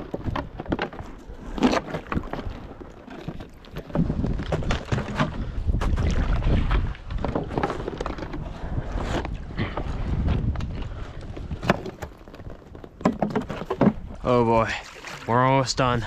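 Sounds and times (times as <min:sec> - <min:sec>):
water splashes: 0:00.0 - 0:08.2, 0:13.1 - 0:16.0
wind buffeting microphone: 0:03.9 - 0:12.2.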